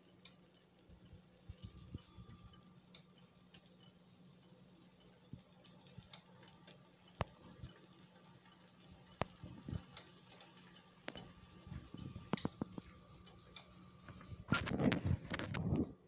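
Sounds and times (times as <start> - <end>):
food bubbling in a pan: 0.0 - 15.8
low steady hum: 0.0 - 16.0
sharp pops and ticks: 4.4 - 7.9, 8.5 - 14.3.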